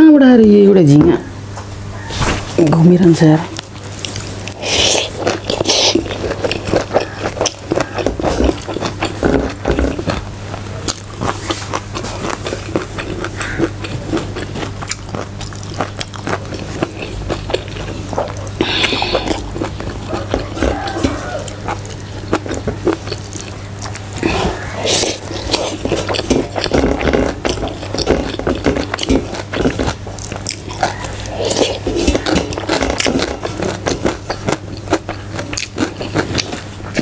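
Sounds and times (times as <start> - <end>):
chewing and lip-smacking: 3.5 - 37.0.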